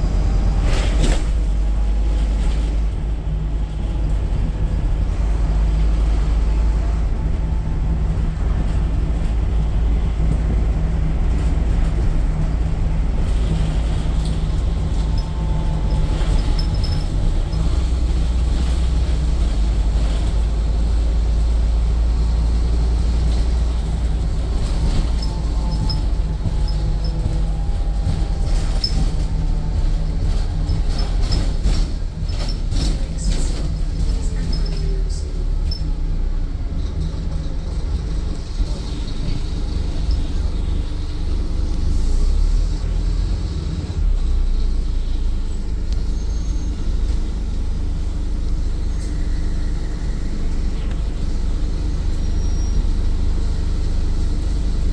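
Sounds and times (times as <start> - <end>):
bus engine rumble: 0.0 - 54.9
body rattles and squeaks: 13.4 - 19.7, 23.6 - 36.0.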